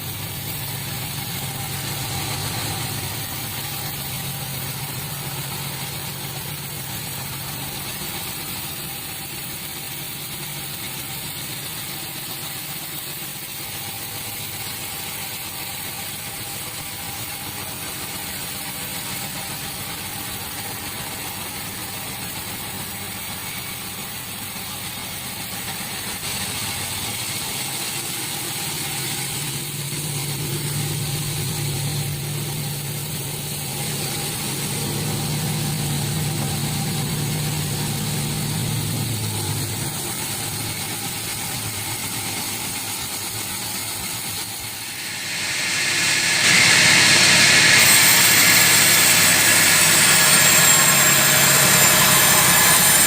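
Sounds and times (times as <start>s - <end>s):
deep steady hum: 0.0s - 9.1s, 29.1s - 42.2s, 44.2s - 53.0s
sawmill saw cutting log: 25.8s - 53.0s.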